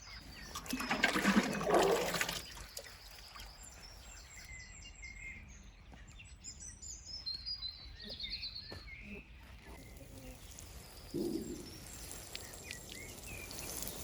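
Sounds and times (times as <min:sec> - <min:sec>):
birds chirping and calling: 0:00.0 - 0:14.0
bird trill: 0:09.8 - 0:14.0.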